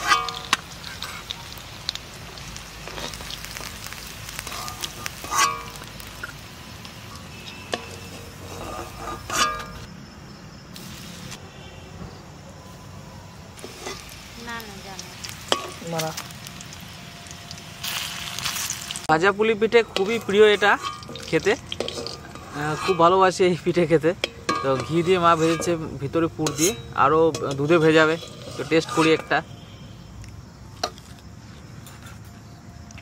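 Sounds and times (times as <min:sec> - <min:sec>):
metal spatula clanking on pan: 0:00.0 - 0:01.2, 0:04.4 - 0:05.9, 0:07.4 - 0:09.9, 0:15.5 - 0:15.8, 0:19.8 - 0:23.2, 0:24.1 - 0:29.5
food sizzling in a wok: 0:00.0 - 0:09.9, 0:10.7 - 0:11.4, 0:13.6 - 0:29.4.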